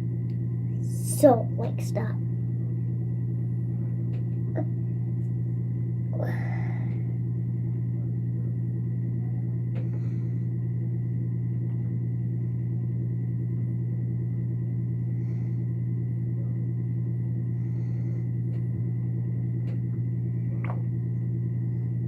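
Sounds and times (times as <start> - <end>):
steady low motor hum: 0.0 - 22.0.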